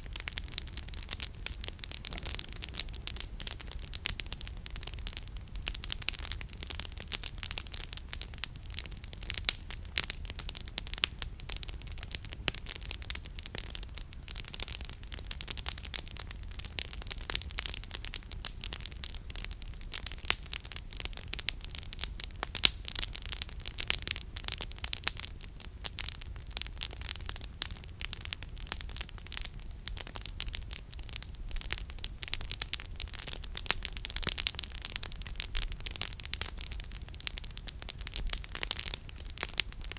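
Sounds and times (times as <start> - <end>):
campfire crackling: 0.0 - 39.9.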